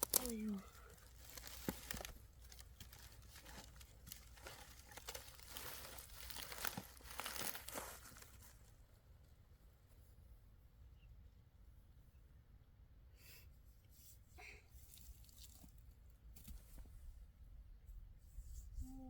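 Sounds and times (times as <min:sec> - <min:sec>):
rustling and crinkling: 0:00.0 - 0:10.0, 0:14.8 - 0:17.1.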